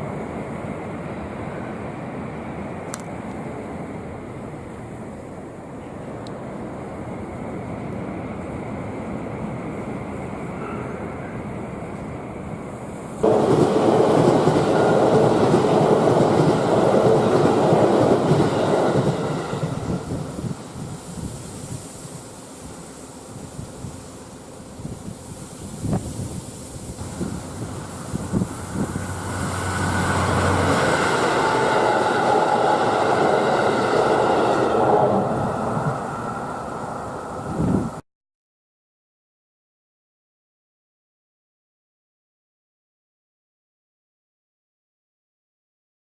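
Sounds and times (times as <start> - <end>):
train wheels rumbling on track: 0.0 - 22.2, 23.7 - 38.0
train hum: 0.0 - 38.0.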